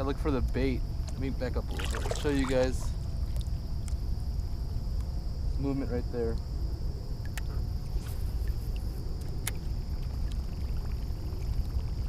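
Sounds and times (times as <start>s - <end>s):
thin high hum: 0.0s - 12.0s
faint sharp clicks: 7.2s - 7.5s.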